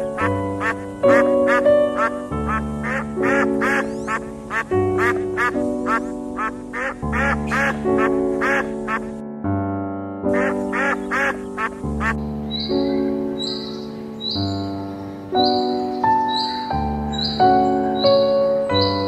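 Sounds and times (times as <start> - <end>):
slow sustained music: 0.0 - 19.0
ducks quacking: 0.1 - 9.2, 10.3 - 14.4.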